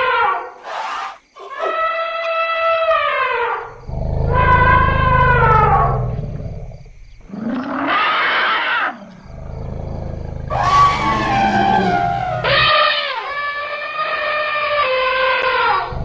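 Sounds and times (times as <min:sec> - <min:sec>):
elephant low rumble: 0:09.3 - 0:13.4
elephants trumpeting: 0:10.5 - 0:13.4.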